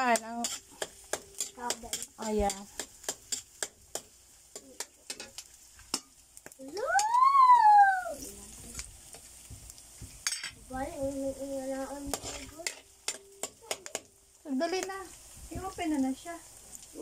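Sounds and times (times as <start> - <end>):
metal spatula clicking on pan: 0.0 - 6.8, 12.1 - 14.1
food frying in a wok: 0.0 - 17.0
loud rising and falling call: 6.8 - 8.3.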